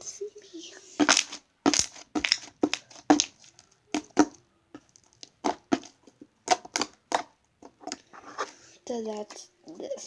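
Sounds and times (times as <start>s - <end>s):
slime squished by hand: 1.0s - 8.0s.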